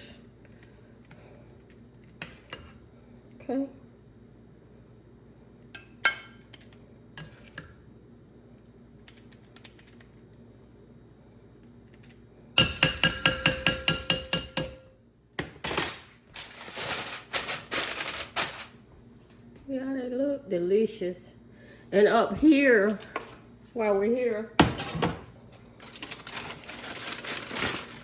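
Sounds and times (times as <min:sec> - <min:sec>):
metal spoon knocking on pot: 0:12.6 - 0:14.9
scraping and rustling of food: 0:16.2 - 0:19.4, 0:25.6 - 0:28.0.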